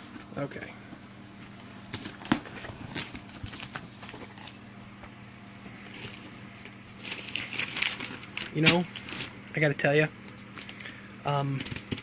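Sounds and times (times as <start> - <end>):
hands handling cardboard box: 1.8 - 4.6.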